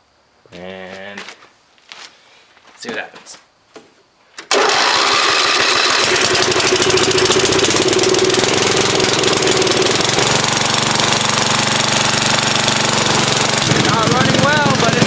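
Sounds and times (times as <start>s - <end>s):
lawn tractor engine running roughly: 4.5s - 15.0s.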